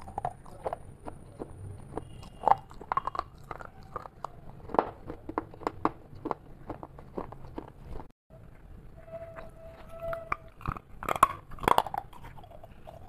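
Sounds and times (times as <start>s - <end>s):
crunchy snack chewing: 0.0s - 8.6s, 9.4s - 13.0s.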